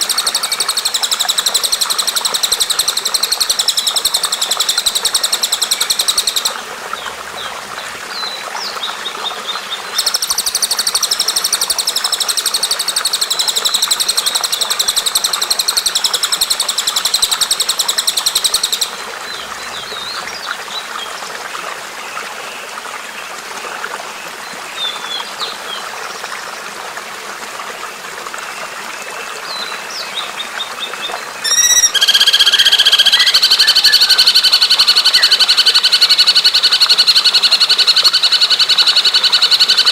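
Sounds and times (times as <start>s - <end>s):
songbird calls: 0.0s - 20.5s, 31.4s - 39.9s
running water rushing: 0.0s - 39.9s.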